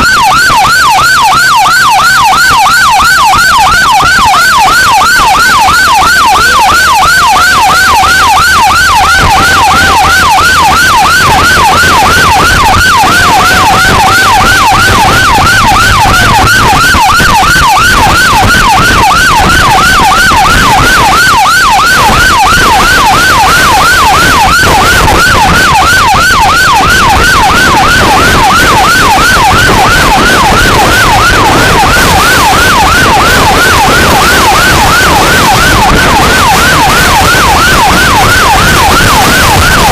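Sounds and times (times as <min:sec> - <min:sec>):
fire truck siren yelping: 0:00.0 - 0:39.9
low held siren tone: 0:00.0 - 0:39.9.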